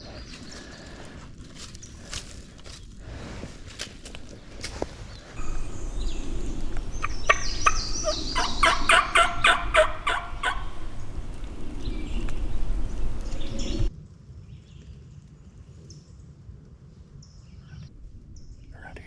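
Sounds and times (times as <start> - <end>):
low rumble: 5.4 - 13.9
turkey gobbling: 5.4 - 13.9.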